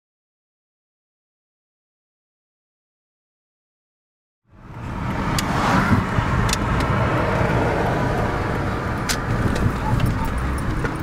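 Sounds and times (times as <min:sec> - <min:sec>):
car engine rumbling: 0:04.5 - 0:11.0
road noise: 0:04.5 - 0:11.0.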